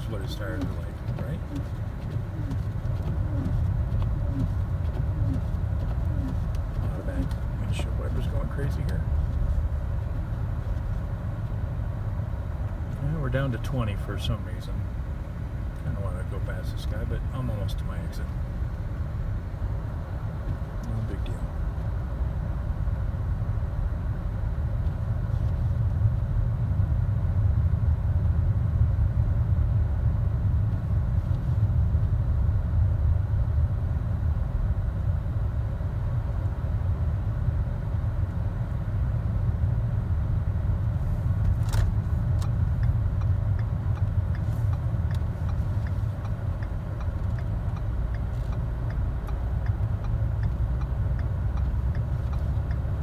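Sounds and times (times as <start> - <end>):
road noise inside car: 0.0 - 53.0.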